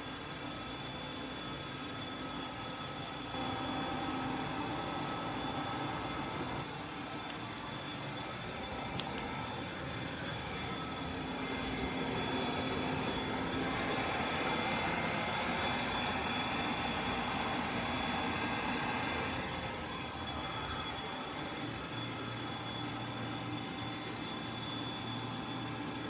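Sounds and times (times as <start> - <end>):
robot vacuum whirring: 3.5 - 26.0.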